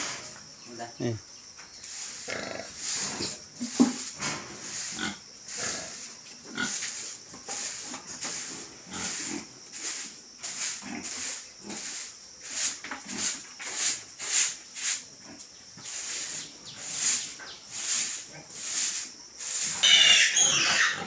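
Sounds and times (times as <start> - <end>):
pigs grunting: 2.0 - 6.8, 19.7 - 21.0.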